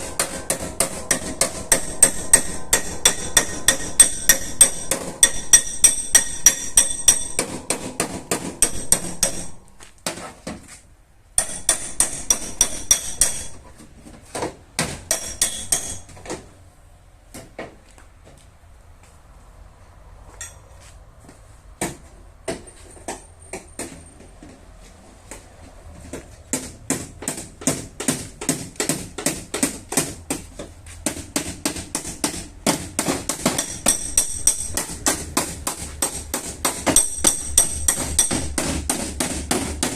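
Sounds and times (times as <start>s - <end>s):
hammer tapping sheet metal: 0.0s - 10.6s, 11.4s - 13.7s, 14.8s - 16.4s, 26.1s - 39.9s.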